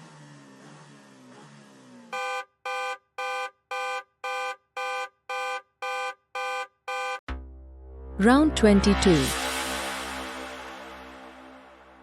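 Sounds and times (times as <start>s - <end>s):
electronic alarm beeping: 2.2s - 7.2s.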